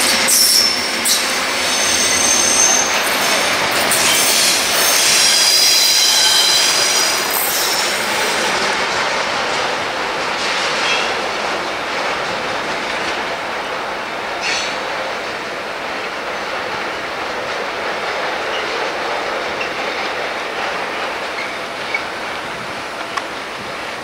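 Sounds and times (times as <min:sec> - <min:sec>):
train wheels squealing: 0:00.0 - 0:08.4, 0:14.4 - 0:14.8
train rolling rush: 0:00.0 - 0:24.0.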